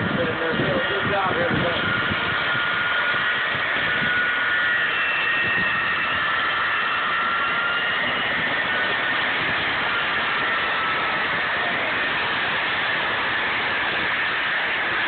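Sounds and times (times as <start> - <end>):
jet engine whining roar: 0.0 - 15.0.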